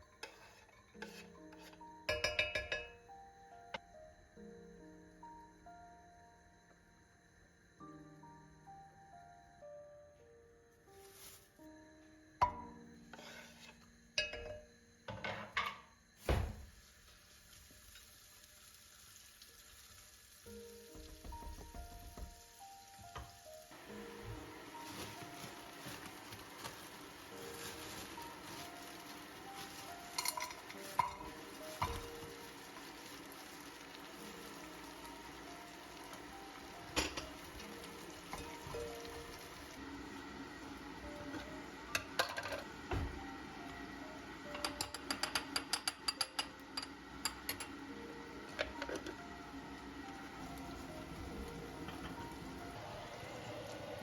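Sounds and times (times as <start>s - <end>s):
pots and utensils knocking: 0.0s - 3.1s, 12.4s - 16.5s, 21.0s - 22.4s, 29.6s - 32.9s, 36.8s - 39.4s, 40.8s - 43.3s, 44.5s - 49.2s, 50.6s - 52.6s
food sizzling in a pan: 0.0s - 3.2s, 11.0s - 11.6s, 12.5s - 14.4s, 15.6s - 54.0s
soft background music: 0.0s - 16.6s, 19.6s - 54.0s.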